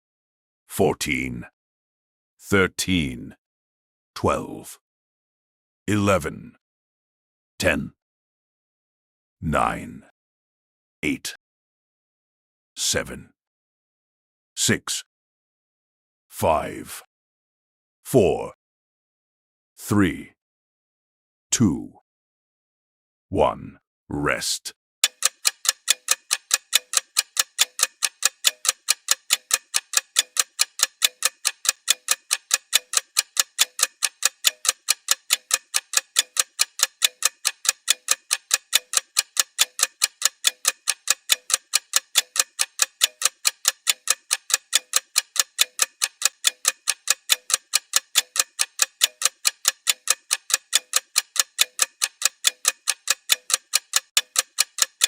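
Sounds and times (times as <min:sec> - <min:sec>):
ticking clock: 0:25.0 - 0:55.0.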